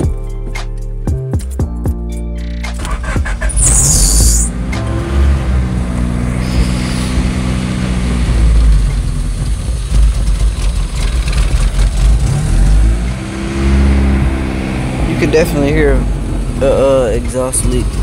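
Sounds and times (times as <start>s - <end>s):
car engine at fast idle: 5.6s - 18.0s.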